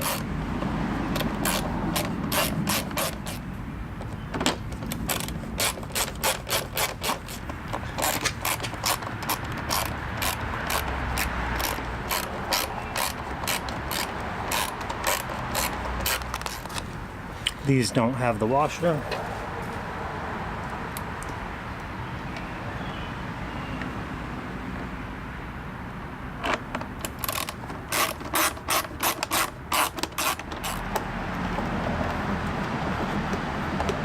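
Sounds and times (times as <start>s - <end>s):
socket ratchet clicking: 0.0s - 16.9s, 26.4s - 34.0s.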